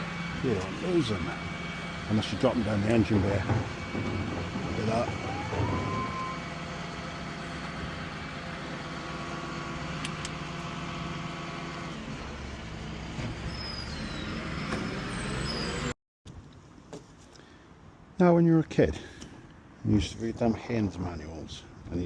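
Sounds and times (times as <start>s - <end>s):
vehicle engine running: 0.0s - 13.2s.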